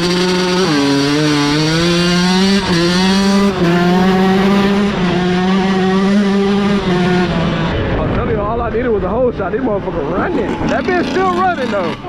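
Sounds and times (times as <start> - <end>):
dirt bike engine accelerating: 0.0 - 12.0.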